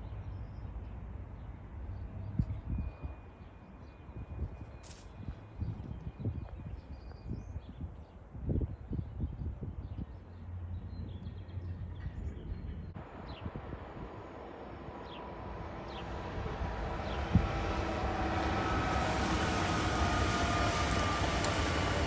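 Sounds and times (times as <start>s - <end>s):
train wheel and rail noise: 11.5s - 22.0s.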